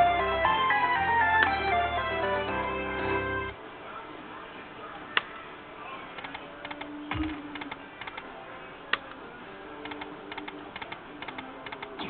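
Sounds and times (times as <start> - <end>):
casino background noise: 0.0 - 12.0
slot machine clicking ticks: 9.9 - 12.0.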